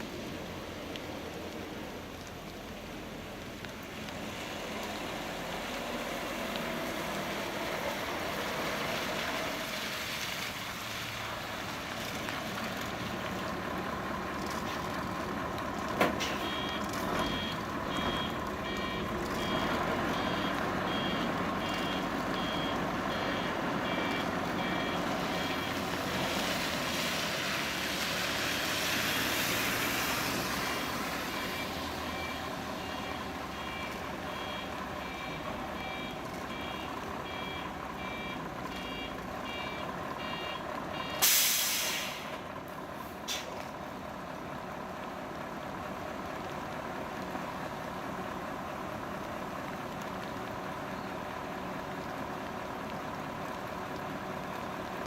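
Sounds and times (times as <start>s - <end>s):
vehicle noise: 0.0s - 55.0s
reversing alarm beeping: 16.3s - 25.8s, 30.7s - 41.4s.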